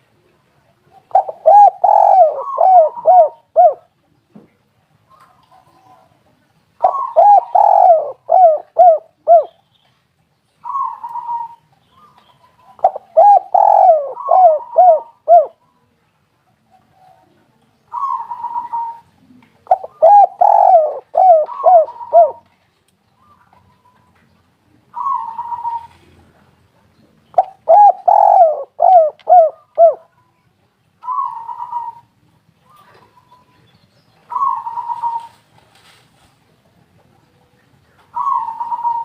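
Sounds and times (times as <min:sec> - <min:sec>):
dove cooing: 0:01.0 - 0:03.9, 0:06.8 - 0:09.6, 0:10.6 - 0:15.6, 0:17.9 - 0:22.5, 0:24.9 - 0:26.2, 0:27.4 - 0:30.2, 0:31.0 - 0:32.1, 0:34.3 - 0:35.5, 0:38.1 - 0:39.0.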